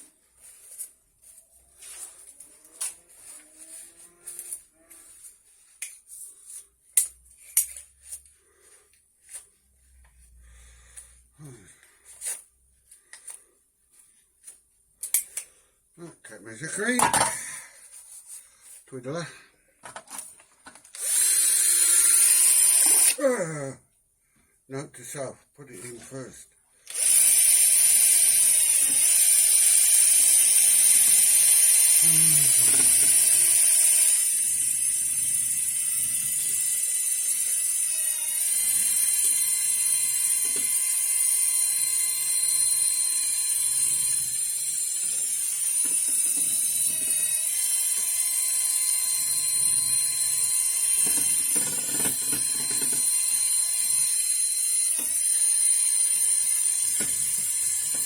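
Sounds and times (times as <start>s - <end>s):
paint sprayer motor whine: 21.0s - 23.2s, 26.9s - 58.0s.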